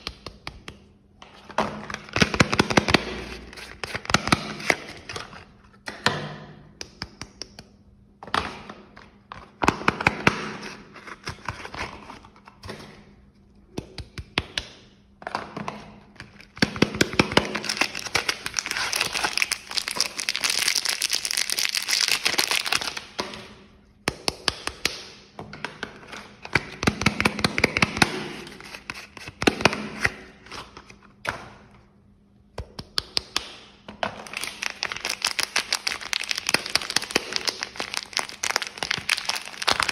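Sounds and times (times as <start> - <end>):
soap packaging crinkling and tearing: 16.2 - 23.2, 27.0 - 31.0, 34.2 - 39.9.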